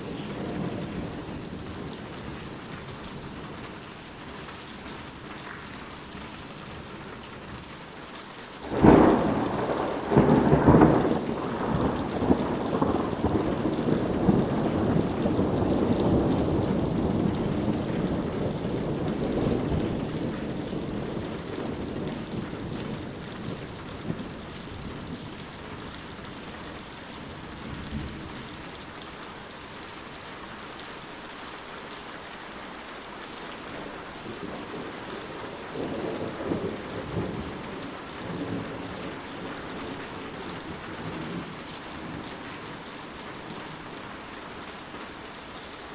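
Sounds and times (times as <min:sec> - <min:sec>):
rolling thunder rumble: 0:00.0 - 0:03.3, 0:08.6 - 0:26.0, 0:33.7 - 0:43.8
steady rain: 0:00.0 - 0:45.9
thunder crack: 0:08.6 - 0:22.8.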